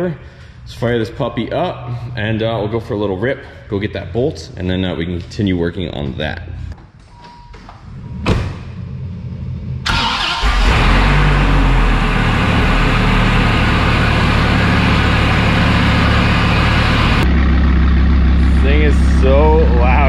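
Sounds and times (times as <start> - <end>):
car engine starting and idling: 7.9 - 20.0.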